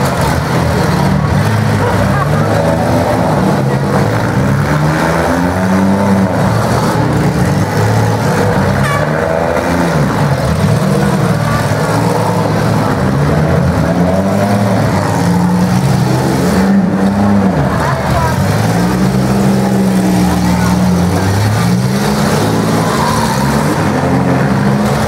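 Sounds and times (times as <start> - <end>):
car engines revving: 0.0 - 25.0.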